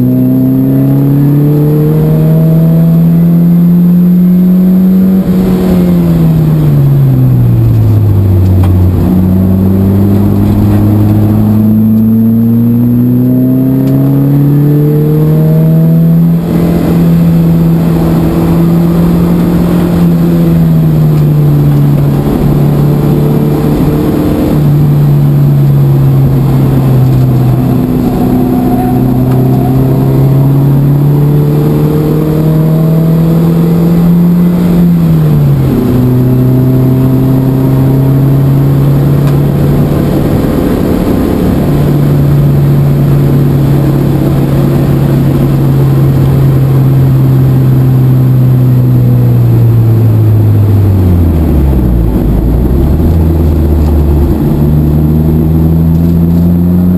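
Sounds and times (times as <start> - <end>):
car engine at full load: 0.0 - 56.9.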